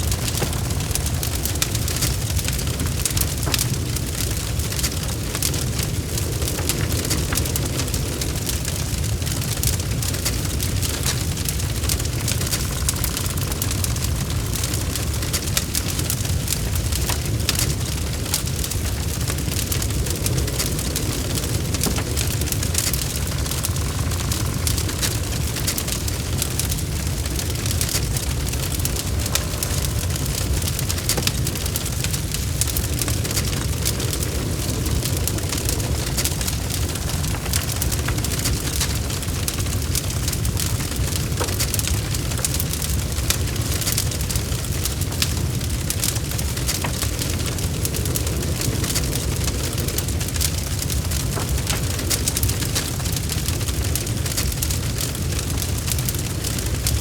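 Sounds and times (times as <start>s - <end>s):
wood fire crackling in fireplace: 0.0s - 57.0s.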